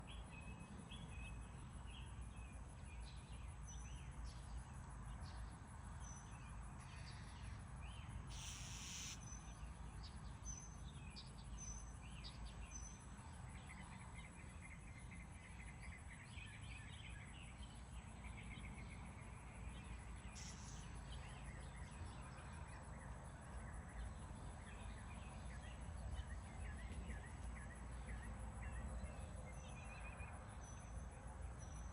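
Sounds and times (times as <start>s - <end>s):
bird chirps: 6.0s - 18.8s
high insect drone: 8.2s - 9.4s, 20.2s - 21.5s
brief hiss: 8.3s - 9.2s.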